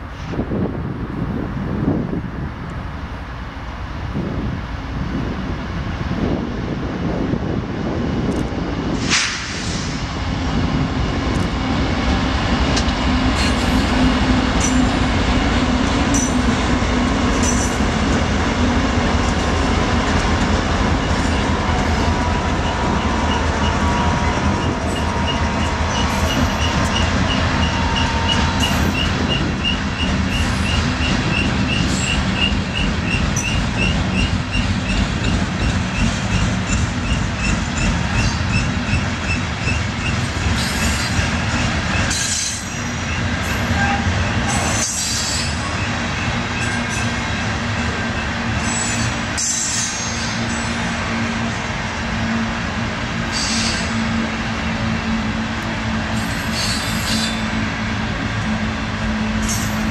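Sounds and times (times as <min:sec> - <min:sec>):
freight train wheels clattering on rail: 0:05.1 - 0:59.9
high wheel squeal: 0:21.0 - 0:47.2, 0:47.8 - 0:51.2, 0:53.3 - 0:55.1, 0:56.1 - 0:57.6, 0:59.1 - 0:59.9.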